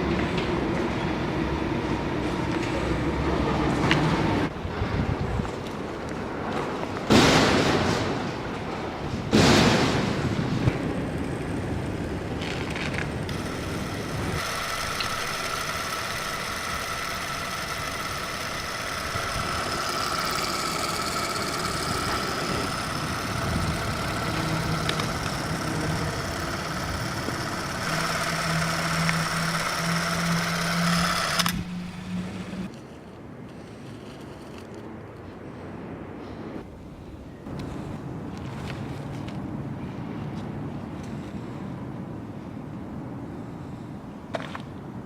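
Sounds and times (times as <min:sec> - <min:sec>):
mechanical drone: 0:09.0 - 0:34.8
low pulsing hum: 0:10.2 - 0:32.9
thin steady whine: 0:10.8 - 0:34.8.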